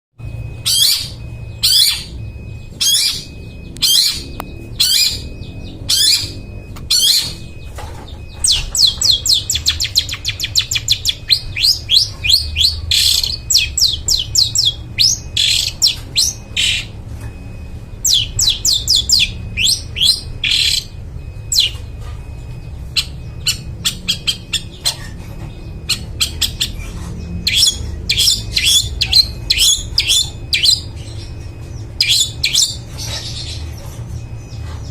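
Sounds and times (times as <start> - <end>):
bird harsh calls: 0.2 - 17.0, 18.0 - 34.9
steady low hum: 0.2 - 34.9.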